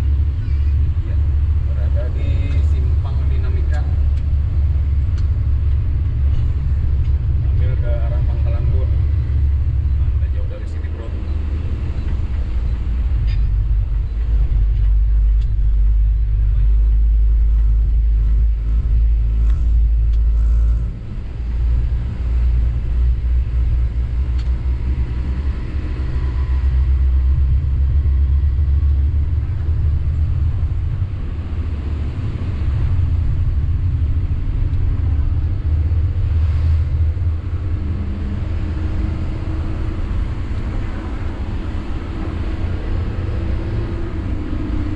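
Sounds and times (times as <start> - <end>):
truck diesel engine rumble: 0.0 - 44.9.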